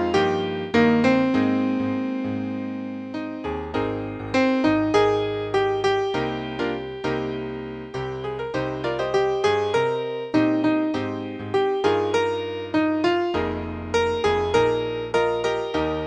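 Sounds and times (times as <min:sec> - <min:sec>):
piano accompaniment: 0:00.0 - 0:16.0.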